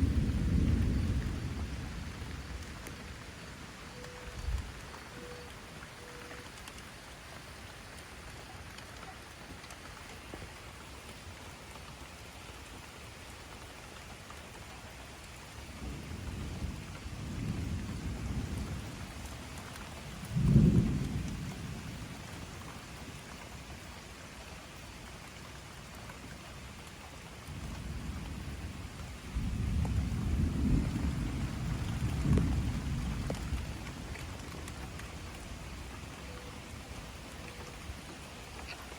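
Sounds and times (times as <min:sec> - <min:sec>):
thunder rumbling: 0:00.0 - 0:06.6, 0:15.7 - 0:22.6, 0:27.4 - 0:38.1
steady rain falling: 0:00.0 - 0:38.9.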